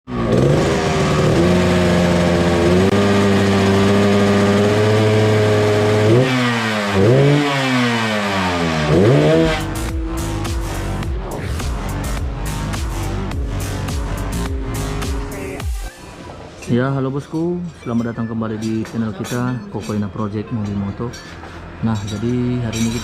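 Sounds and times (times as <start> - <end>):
motorcycle engine revving: 0.1 - 15.9
electronic music with beat: 8.9 - 16.3.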